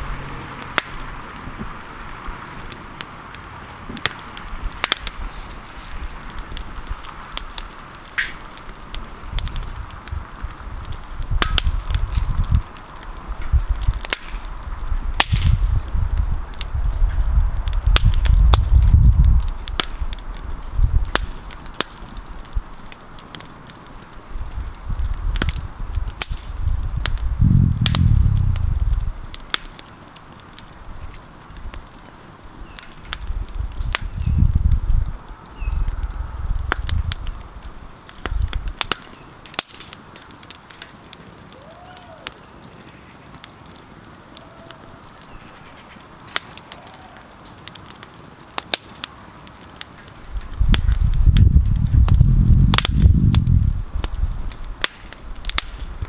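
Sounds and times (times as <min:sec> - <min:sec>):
low rumbling: 0:00.0 - 0:21.5, 0:24.4 - 0:29.5, 0:50.3 - 0:54.6
wood campfire crackling: 0:00.0 - 0:56.0
faint bird calls: 0:44.4 - 0:47.2.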